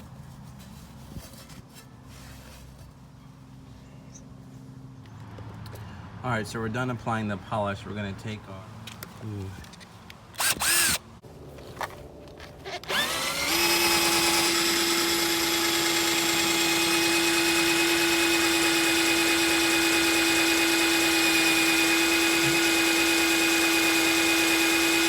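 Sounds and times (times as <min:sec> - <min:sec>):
power drill whining: 0:10.4 - 0:11.0, 0:12.6 - 0:25.0.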